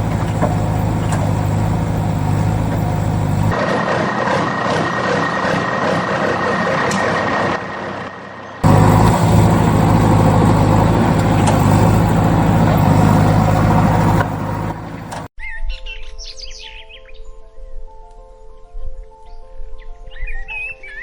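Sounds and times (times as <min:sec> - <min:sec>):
engine drone with low hum: 0:00.0 - 0:15.3
heavy vehicle engine running: 0:00.0 - 0:15.3.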